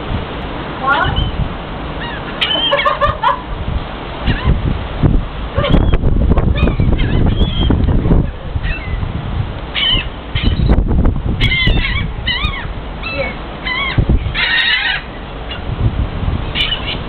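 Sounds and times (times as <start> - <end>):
seagulls squawking: 1.0 - 1.4, 2.0 - 3.5, 4.2 - 4.6, 5.5 - 9.1, 9.7 - 10.8, 11.4 - 15.7, 16.5 - 17.0.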